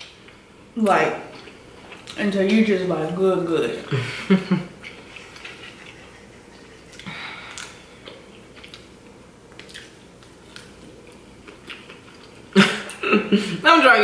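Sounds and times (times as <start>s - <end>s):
person biting and chewing pizza: 4.8s - 13.0s.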